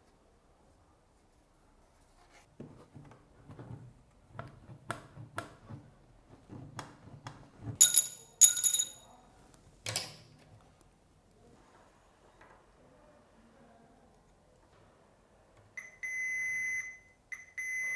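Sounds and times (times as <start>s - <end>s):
hard parts clattering: 7.8s - 9.1s
ringing metallic clinks: 7.8s - 9.1s.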